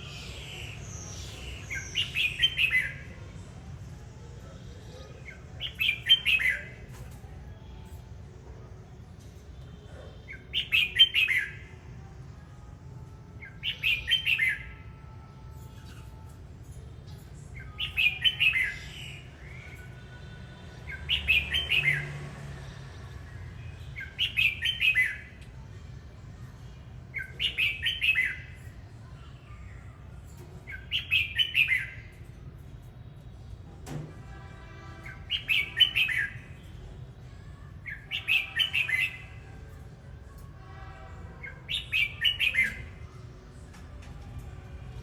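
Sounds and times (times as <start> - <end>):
bird singing warbled phrases: 0.0 - 3.5, 4.9 - 6.9, 10.2 - 11.8, 13.4 - 14.8, 17.3 - 22.3, 23.3 - 25.6, 26.6 - 30.0, 30.6 - 32.3, 34.9 - 40.0, 41.3 - 43.6.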